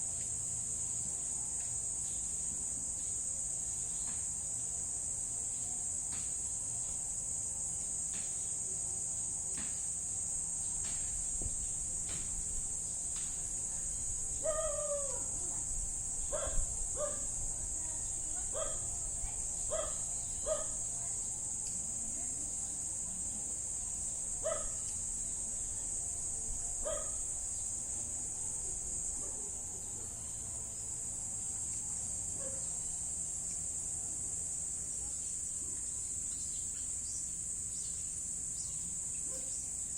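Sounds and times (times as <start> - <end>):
crickets chirping: 0.0 - 39.9
dog barking: 16.3 - 17.3, 18.5 - 18.9, 19.7 - 20.8, 24.4 - 24.8, 26.8 - 27.2, 32.4 - 32.7, 39.3 - 39.6.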